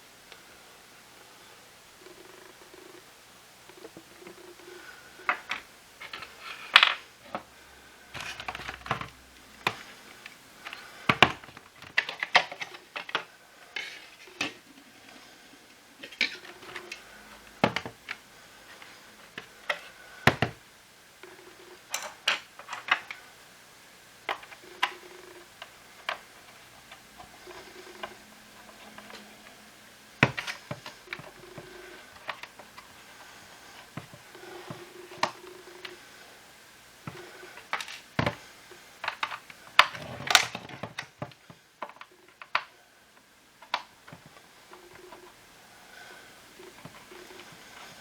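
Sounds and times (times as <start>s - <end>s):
plastic parts clicking and knocking: 5.2s - 7.5s, 8.1s - 14.7s, 16.0s - 20.6s, 21.3s - 23.2s, 24.2s - 29.3s, 30.2s - 36.0s, 37.0s - 42.7s, 43.6s - 45.4s.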